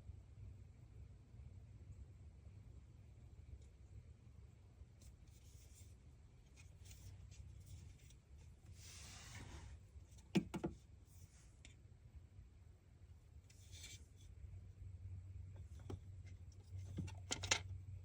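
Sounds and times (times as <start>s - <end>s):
low steady hum: 0.0s - 18.0s
rubbing and handling parts: 5.0s - 11.8s, 13.4s - 14.4s, 15.6s - 17.7s.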